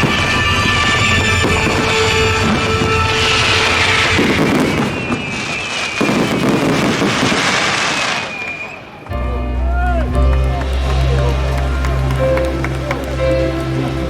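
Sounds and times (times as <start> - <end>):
fireworks bursting and crackling: 0.0 - 9.1.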